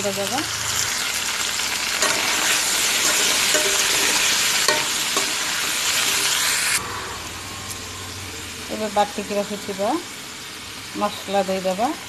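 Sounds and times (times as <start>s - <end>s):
vegetables sizzling in hot oil: 0.0s - 12.0s
metal spatula scraping a pan: 1.9s - 6.8s.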